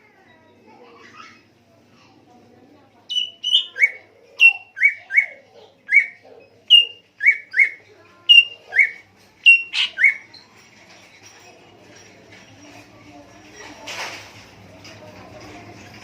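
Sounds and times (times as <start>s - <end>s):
songbird whistling: 3.1s - 10.2s.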